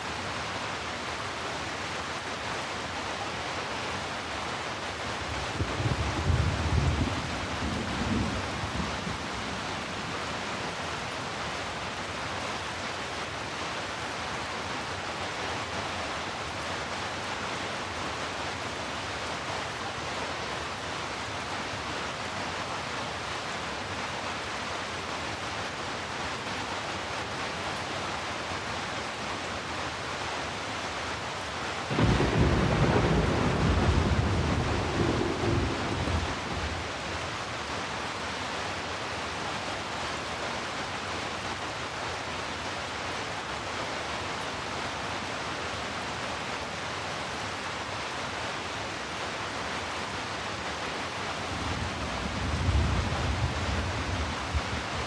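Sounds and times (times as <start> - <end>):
thunder rumbling: 5.6 - 9.8, 31.9 - 37.2
heavy rain hissing: 25.0 - 55.0.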